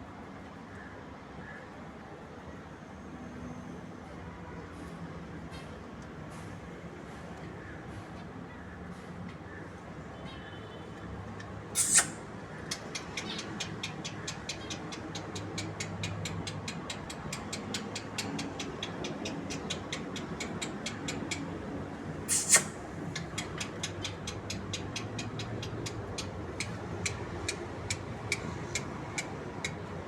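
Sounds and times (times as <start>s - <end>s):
shrill bird screeches: 11.8s - 12.3s, 22.3s - 22.9s
rapid high ticks: 11.8s - 21.7s, 22.3s - 30.0s.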